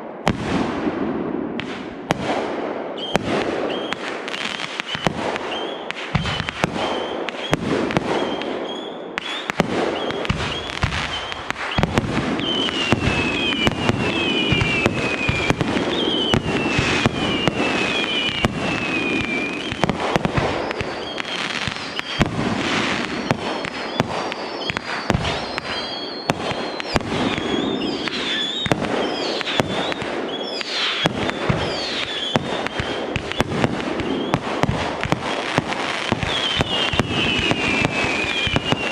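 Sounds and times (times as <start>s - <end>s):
fireworks bangs and crackles: 0.0s - 38.9s
fireworks falling whistles: 3.0s - 38.9s.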